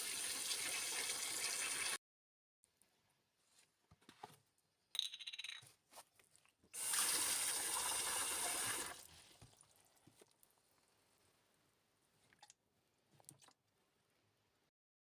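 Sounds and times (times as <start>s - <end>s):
kitchen tap running: 0.0s - 2.0s, 6.8s - 9.1s.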